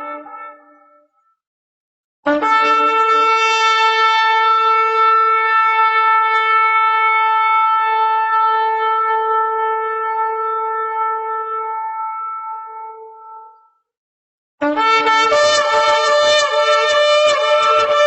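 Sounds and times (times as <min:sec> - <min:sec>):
shofar blast: 0:00.0 - 0:01.0, 0:02.3 - 0:13.1, 0:14.6 - 0:18.0.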